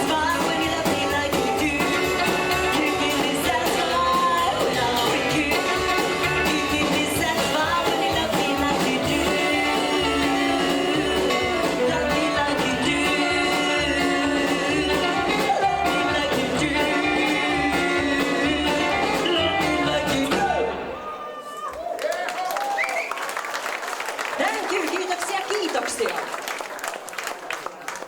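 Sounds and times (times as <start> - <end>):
electric guitar: 0.0 - 21.0
person singing: 0.0 - 21.0
rockabilly band playing: 0.0 - 21.2.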